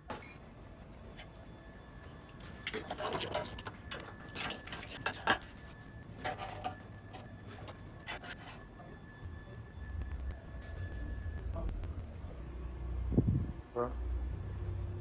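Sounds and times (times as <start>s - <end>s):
tools and metal parts clinking: 2.4s - 8.7s.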